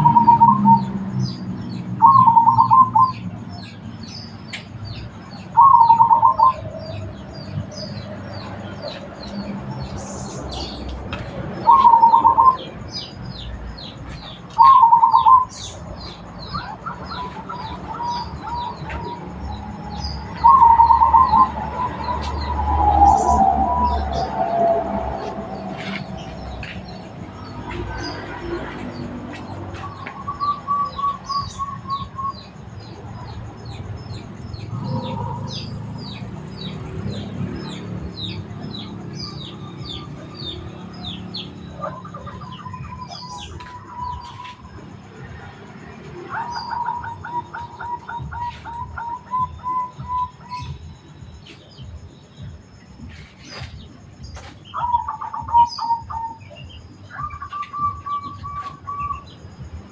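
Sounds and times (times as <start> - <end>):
dove cooing: 0.0 - 0.9, 2.0 - 3.4, 5.6 - 6.7, 11.6 - 12.7, 14.6 - 15.5, 16.1 - 28.7
small birds chirping: 0.0 - 59.9.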